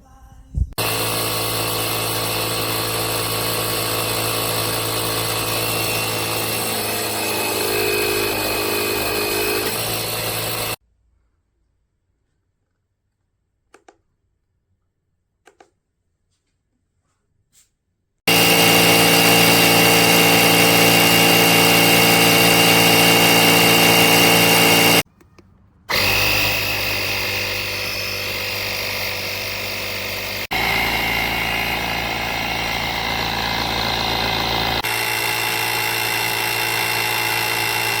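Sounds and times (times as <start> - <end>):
electric air compressor humming: 0.8 - 10.8, 18.3 - 25.0, 25.9 - 38.0.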